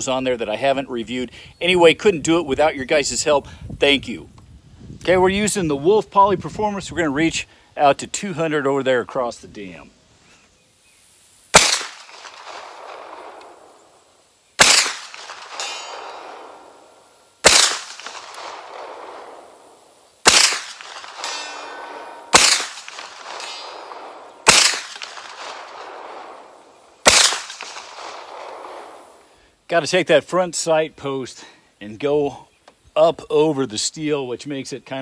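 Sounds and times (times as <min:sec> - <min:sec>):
rifle shots echoing: 0:11.5 - 0:13.8, 0:14.6 - 0:29.2.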